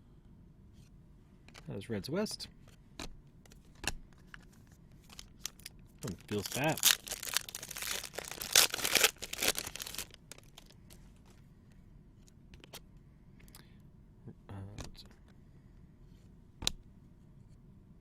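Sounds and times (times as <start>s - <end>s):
cards clicking and tapping: 3.0s - 4.5s
foil wrapper crinkling: 4.3s - 10.8s.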